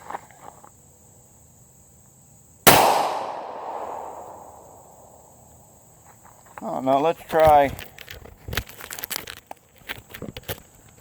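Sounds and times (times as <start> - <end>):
pistol shot with echo: 2.7 - 5.1.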